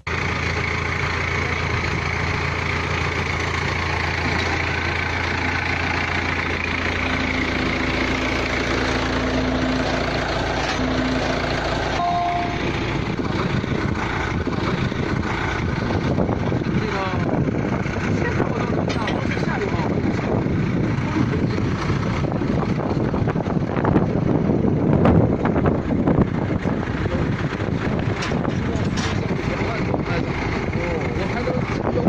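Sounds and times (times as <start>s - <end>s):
drilling rig engine running: 0.0s - 32.0s
high whine: 5.2s - 16.1s.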